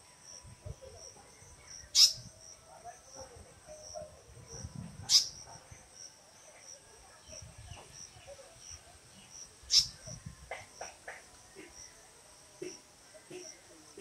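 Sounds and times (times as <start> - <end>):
insects chirping: 0.0 - 14.0
sharp bird calls: 1.9 - 2.3, 5.1 - 5.4, 9.7 - 10.2.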